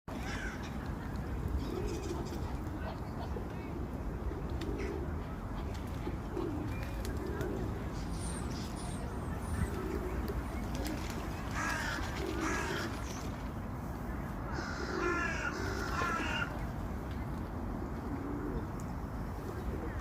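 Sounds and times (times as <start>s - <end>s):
bird cooing: 6.0s - 8.0s, 18.0s - 18.7s
harsh cawing calls: 14.5s - 16.5s.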